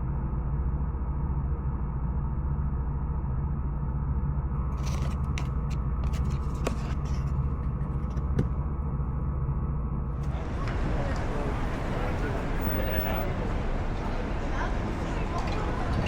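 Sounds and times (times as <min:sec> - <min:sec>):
vehicle rumbling in motion: 0:00.0 - 0:16.0.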